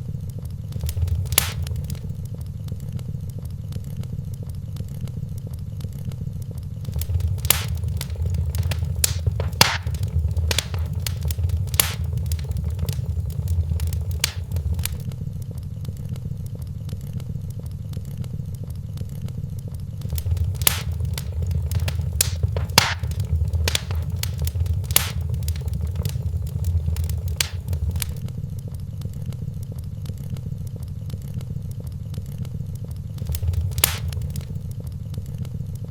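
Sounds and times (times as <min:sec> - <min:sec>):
wood fire crackling and popping: 0:00.7 - 0:02.3, 0:06.8 - 0:15.1, 0:20.0 - 0:28.4, 0:33.2 - 0:34.8
low steady rumble: 0:00.7 - 0:02.4, 0:06.8 - 0:15.2, 0:19.9 - 0:28.5, 0:33.2 - 0:35.4.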